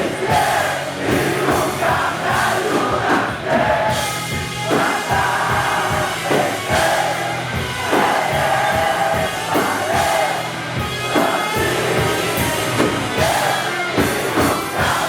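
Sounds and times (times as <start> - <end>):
drum hits: 0.0 - 15.0
live band music: 0.0 - 15.0.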